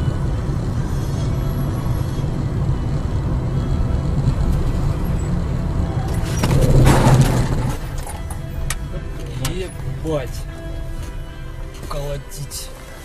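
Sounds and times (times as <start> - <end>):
car engine and road noise: 0.0 - 13.0
sudden sharp noise: 6.3 - 7.8.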